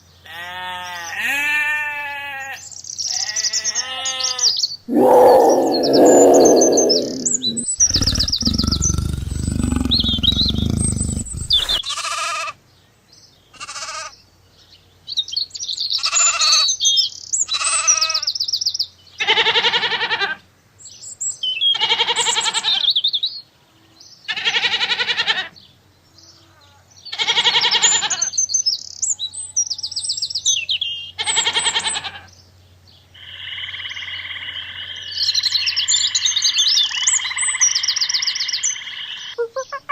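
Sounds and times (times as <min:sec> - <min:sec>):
animal bleating: 0:00.3 - 0:02.6
birds chirping: 0:04.9 - 0:11.8, 0:39.4 - 0:39.9
pitched animal calls: 0:04.9 - 0:11.8, 0:39.4 - 0:39.9
rough noisy animal calls: 0:04.9 - 0:11.8.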